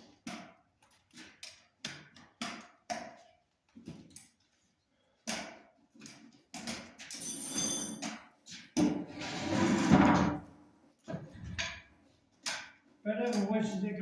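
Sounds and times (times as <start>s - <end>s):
rasping scrape: 9.1s - 10.4s.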